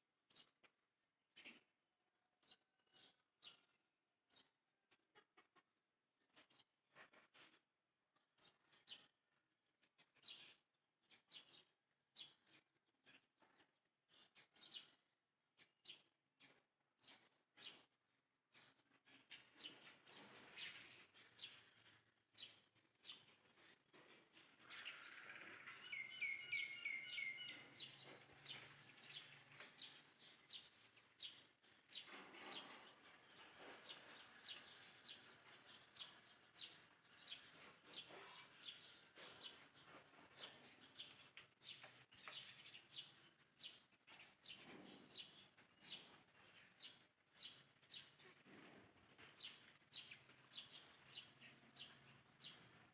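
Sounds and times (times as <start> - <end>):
faint bird chirps: 18.6 - 48.4.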